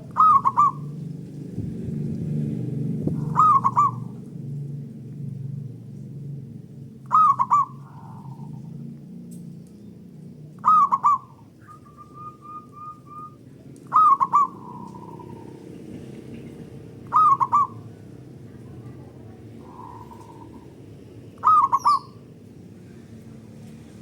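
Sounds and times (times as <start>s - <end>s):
dove cooing: 0.0s - 1.1s, 3.0s - 4.3s, 7.0s - 8.8s, 10.5s - 22.3s.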